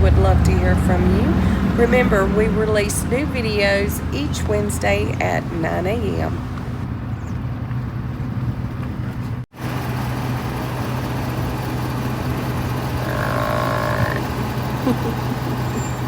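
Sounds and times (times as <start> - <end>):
vehicle engine idling: 0.0 - 16.0
held call: 12.1 - 16.0.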